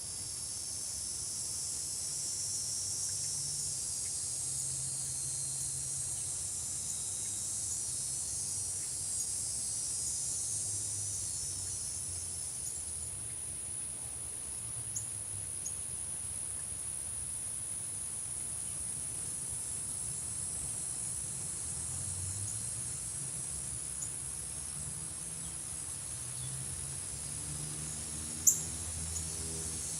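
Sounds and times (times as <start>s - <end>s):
insect chorus trilling: 0.0s - 29.9s.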